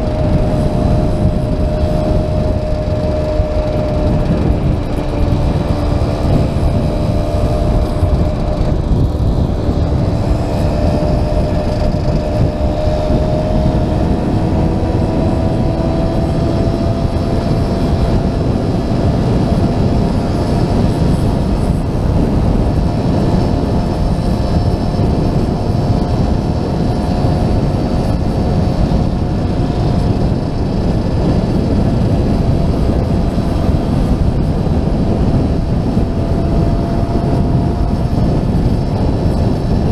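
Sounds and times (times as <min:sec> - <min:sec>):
small motorcycle engine running: 0:00.0 - 0:39.9
wind rumble on microphone: 0:00.0 - 0:39.9.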